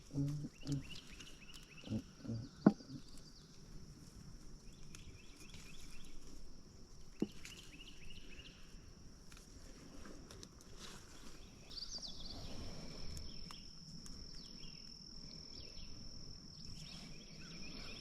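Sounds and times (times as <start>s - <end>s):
birds chirping: 0.0s - 3.6s
insect drone: 0.0s - 18.0s.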